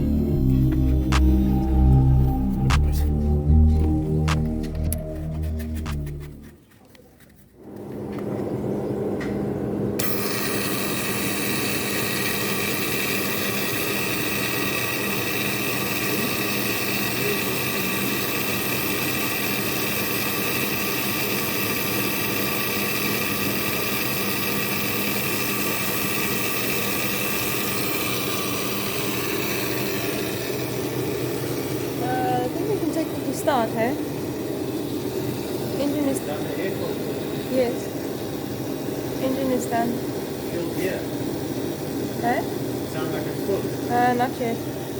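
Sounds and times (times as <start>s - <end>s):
high whine: 0.0s - 6.6s
machine humming: 0.0s - 6.6s, 9.8s - 44.9s.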